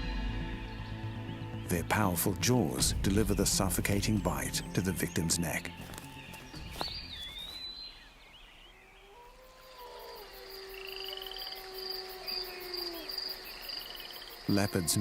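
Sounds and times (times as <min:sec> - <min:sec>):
pulsing insect trill: 0:09.4 - 0:15.0.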